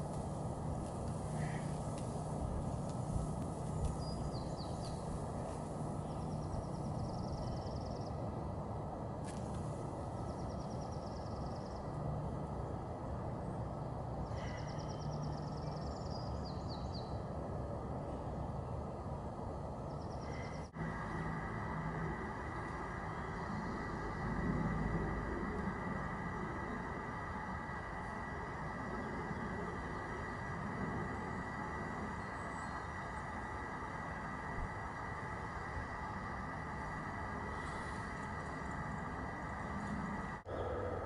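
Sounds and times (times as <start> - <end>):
outdoor background rumble: 0.0 - 41.0
bird singing high trills: 3.8 - 8.2, 14.4 - 17.2, 31.0 - 33.6.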